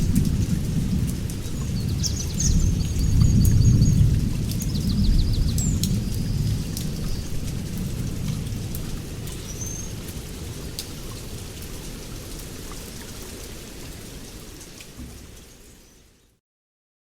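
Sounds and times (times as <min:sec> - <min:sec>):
low rumble of thunder: 0:00.0 - 0:10.6
heavy rain: 0:00.0 - 0:16.4.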